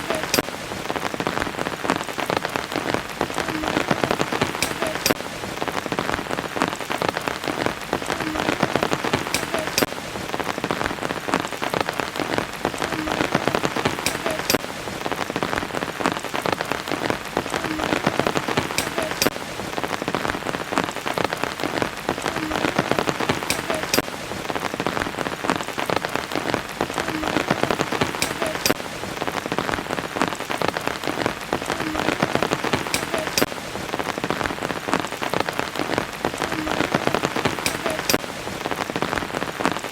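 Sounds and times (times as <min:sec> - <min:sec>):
rain falling on a surface: 0:00.0 - 0:39.9.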